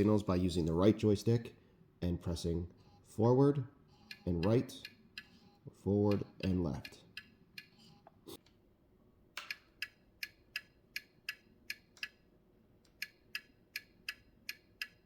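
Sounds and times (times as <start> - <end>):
turn signal ticking: 13.0 - 15.0.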